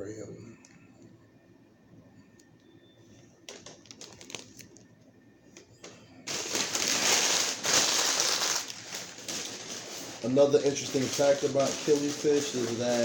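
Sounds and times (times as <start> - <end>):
plastic packaging clicks: 3.5 - 4.9, 5.8 - 13.0
plastic packaging rustling: 3.5 - 4.9, 6.2 - 13.0.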